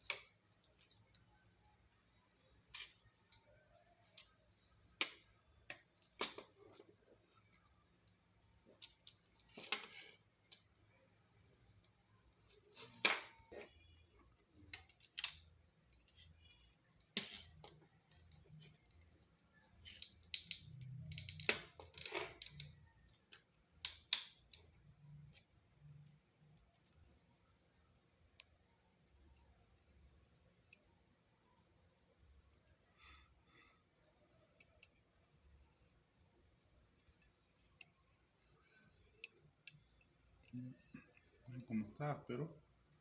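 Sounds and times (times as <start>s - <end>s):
small clicks and taps of handled parts: 14.6s - 27.1s
plastic and metal clicks: 19.8s - 24.7s.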